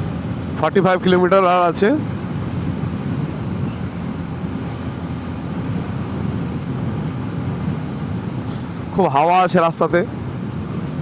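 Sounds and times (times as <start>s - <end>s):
wind on microphone: 2.0s - 9.0s.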